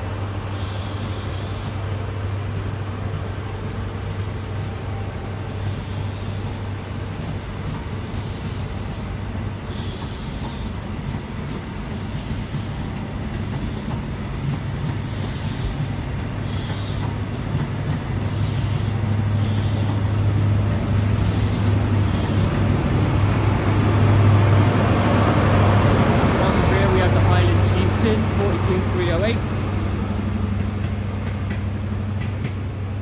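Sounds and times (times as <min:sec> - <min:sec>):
train coaches rolling over rails: 0:00.0 - 0:33.0
diesel engine hum: 0:17.8 - 0:33.0.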